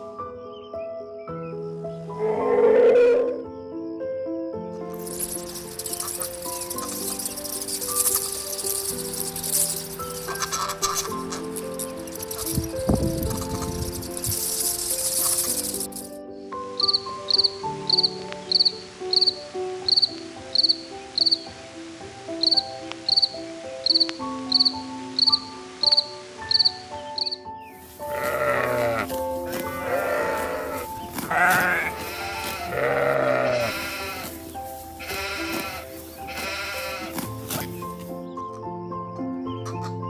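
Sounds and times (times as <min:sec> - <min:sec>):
background music with ticking beat: 0:04.9 - 0:21.6, 0:22.2 - 0:40.0
farm animal bleating: 0:10.1 - 0:14.0, 0:28.0 - 0:38.0.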